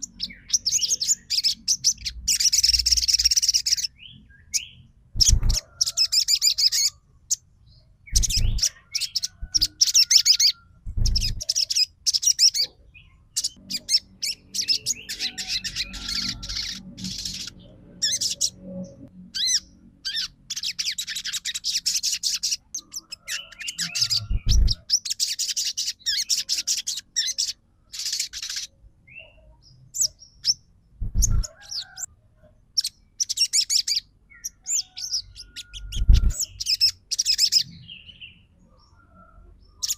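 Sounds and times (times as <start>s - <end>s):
bird chirping trills: 0.0s - 39.9s
low thumps: 31.0s - 31.4s.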